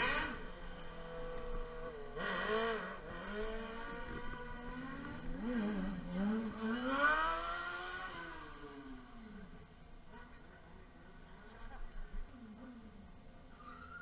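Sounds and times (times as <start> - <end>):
two-stroke motorcycle engine revving: 0.0 - 9.5.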